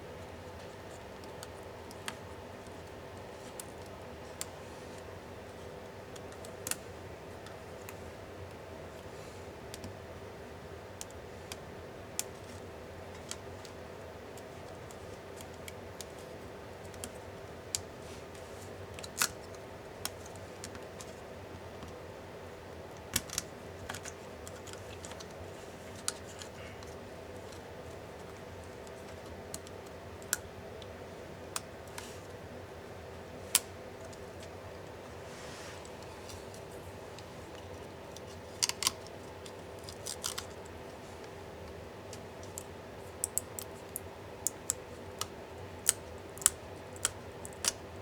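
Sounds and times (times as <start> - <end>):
steady background hum: 0.0 - 48.0.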